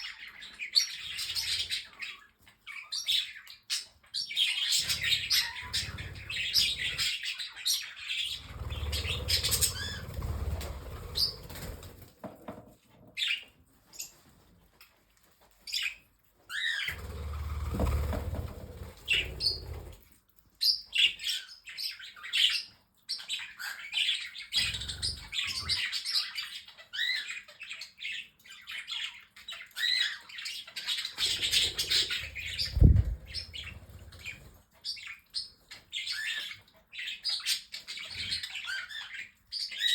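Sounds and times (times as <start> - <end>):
birds chirping and chattering: 0.0 - 39.9
wings flapping: 8.6 - 12.1, 16.9 - 20.0, 31.2 - 34.4.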